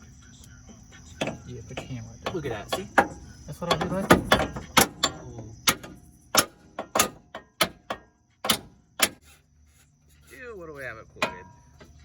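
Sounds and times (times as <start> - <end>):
hammer striking metal: 11.2 - 11.7.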